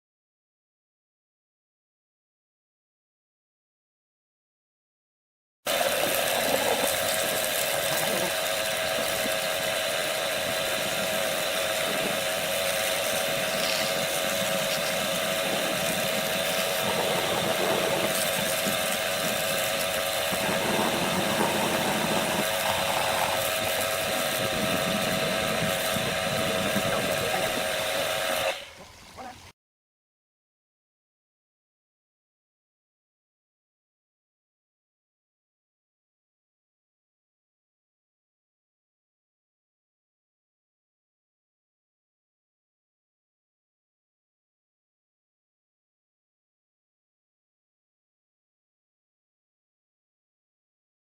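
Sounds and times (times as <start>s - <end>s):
power tool whining: 5.7s - 28.8s.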